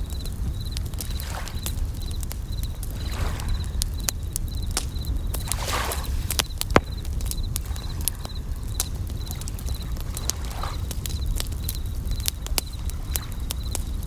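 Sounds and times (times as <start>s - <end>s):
campfire crackling and popping: 0.0s - 14.0s
cricket chirping trills: 0.0s - 14.0s
wave washing: 5.4s - 8.2s.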